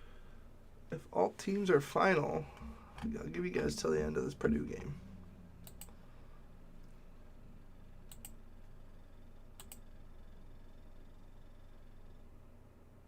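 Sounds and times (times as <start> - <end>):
low steady hum: 0.0 - 13.0
faint sharp clicks: 5.6 - 6.0, 8.1 - 8.4, 9.6 - 9.8.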